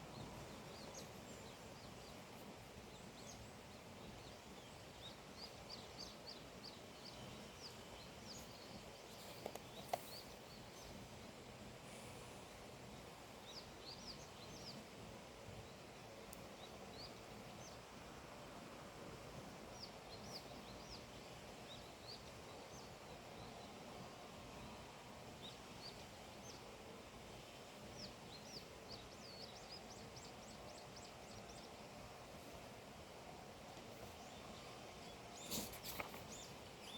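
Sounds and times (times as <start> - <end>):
small birds chirping: 0.0 - 15.0, 27.5 - 36.9
steady low hiss: 0.0 - 36.9.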